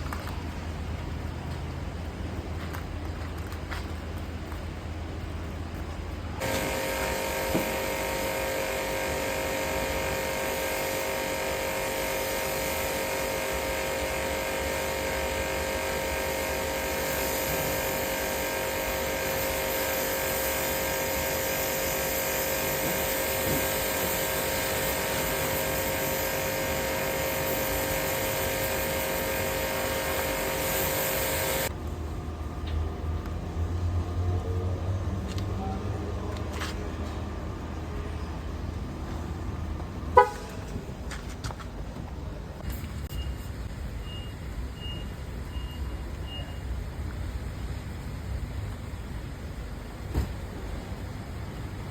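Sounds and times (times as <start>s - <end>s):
electric machine whining: 6.4s - 31.7s.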